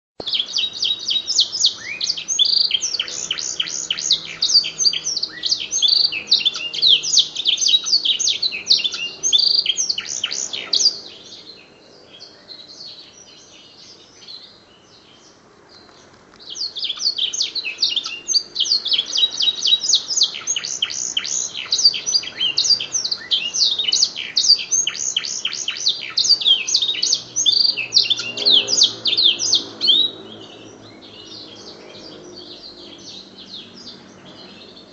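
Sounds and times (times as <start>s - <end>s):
canary singing chirps and trills: 0.2s - 34.9s.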